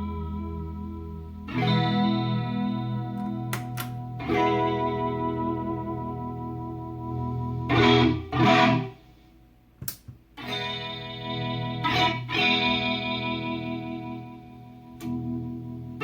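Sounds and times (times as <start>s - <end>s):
electric guitar chords with chorus: 0.0s - 9.0s, 10.4s - 16.0s.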